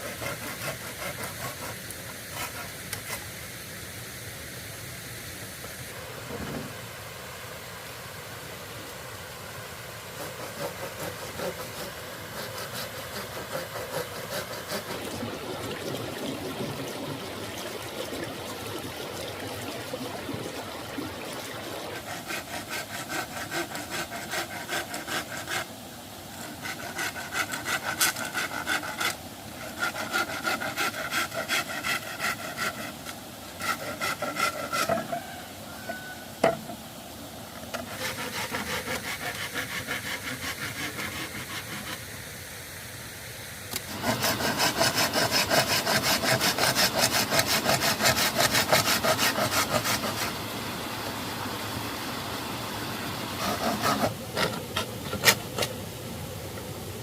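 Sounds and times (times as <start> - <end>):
hand saw cutting bamboo: 0.0 - 3.3, 10.1 - 15.2, 21.6 - 25.8, 26.4 - 35.3, 37.7 - 42.0, 43.7 - 50.4, 53.4 - 55.8.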